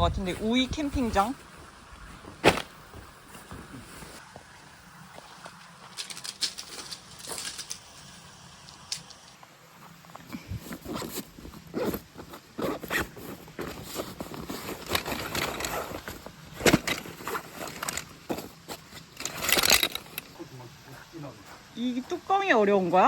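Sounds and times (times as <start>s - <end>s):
rustling: 0.0s - 4.2s, 5.2s - 20.5s.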